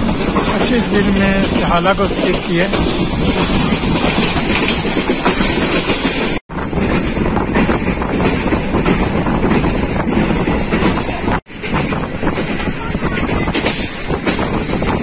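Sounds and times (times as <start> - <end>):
train wheels on rail: 0.0 - 15.0.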